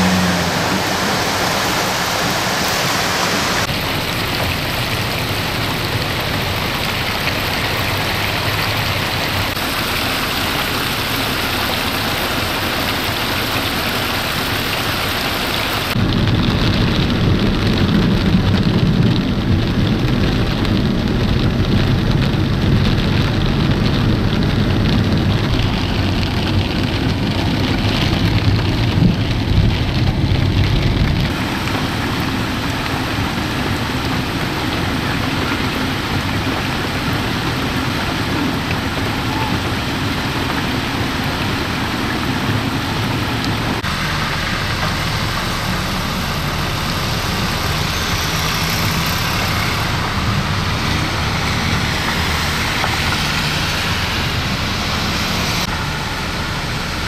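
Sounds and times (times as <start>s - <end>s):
floodwater rushing down a street: 0.0s - 57.0s
heavy rain: 0.0s - 57.0s
low rumble: 15.9s - 57.0s.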